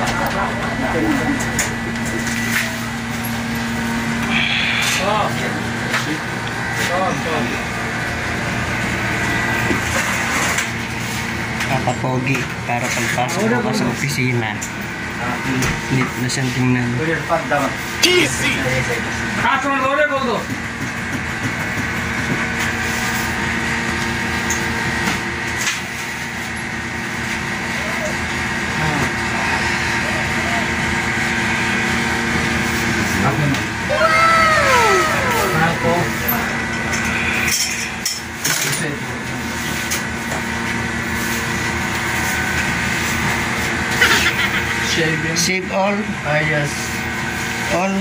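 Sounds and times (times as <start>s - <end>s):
faint voices: 0.0s - 8.0s, 27.5s - 39.6s
high whine: 0.0s - 12.0s, 26.8s - 44.4s
mechanical hum: 0.0s - 48.0s
room noise: 24.3s - 48.0s.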